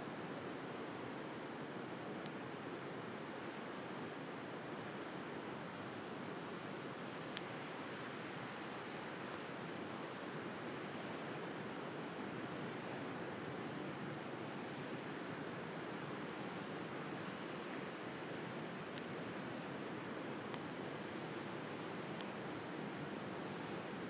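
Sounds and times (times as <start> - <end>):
wood fire crackling: 6.4 - 24.0.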